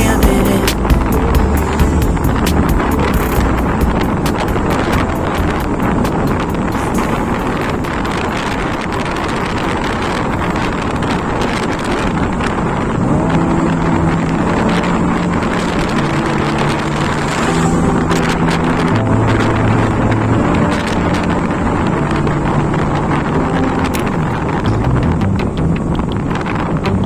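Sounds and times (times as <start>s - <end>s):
motorcycle engine running: 0.0s - 12.7s
wind buffeting microphone: 0.0s - 27.0s.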